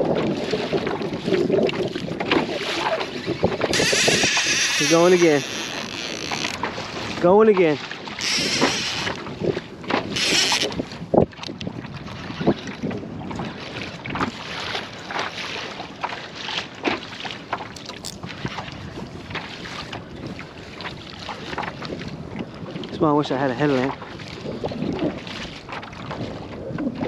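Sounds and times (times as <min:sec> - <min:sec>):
wind buffeting microphone: 0:00.0 - 0:16.0, 0:17.4 - 0:27.0
water splashing against kayak hull: 0:00.0 - 0:27.0.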